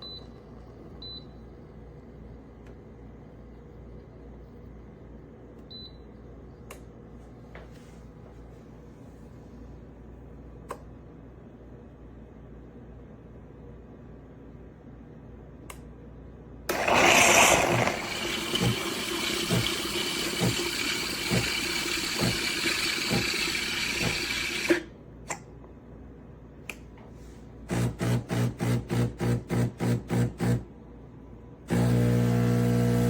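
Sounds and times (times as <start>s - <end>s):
espresso machine hissing: 16.7s - 24.8s, 31.7s - 33.0s.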